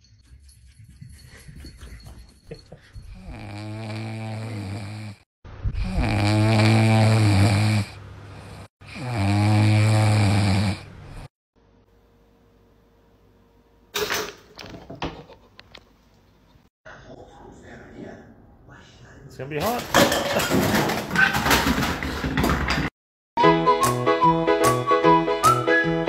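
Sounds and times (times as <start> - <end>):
puppy snoring: 3.2 - 11.3.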